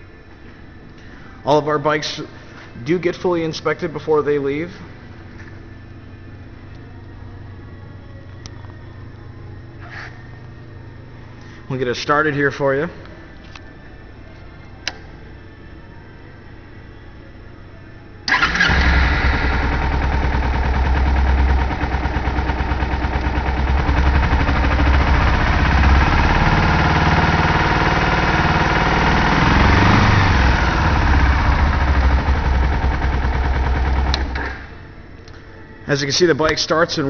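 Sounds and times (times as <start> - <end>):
motorcycle engine starting and idling: 18.3 - 35.0.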